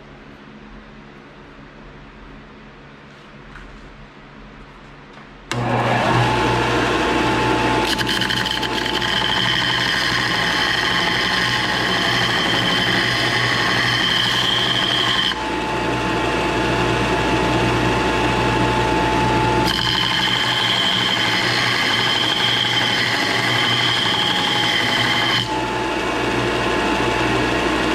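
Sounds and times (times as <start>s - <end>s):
power tool whining: 5.5s - 27.9s.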